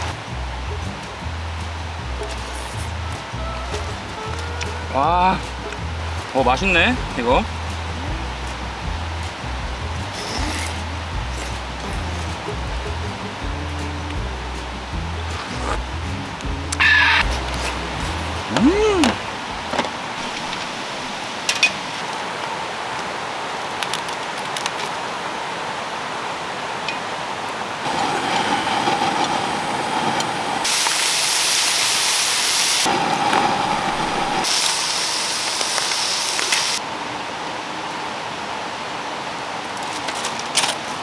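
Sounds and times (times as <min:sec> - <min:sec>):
meat sizzling on a grill: 0:27.9 - 0:36.8.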